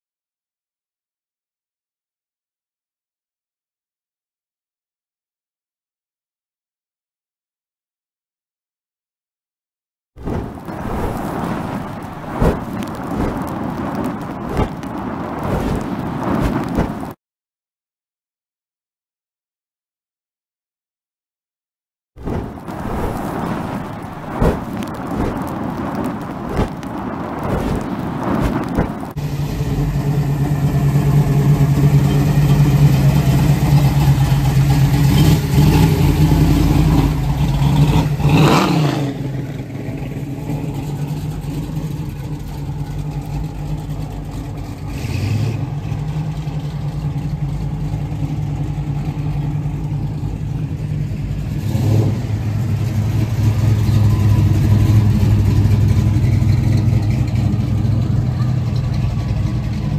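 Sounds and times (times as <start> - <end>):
engine revving: 22.2 - 59.9
car engines droning: 22.3 - 59.9.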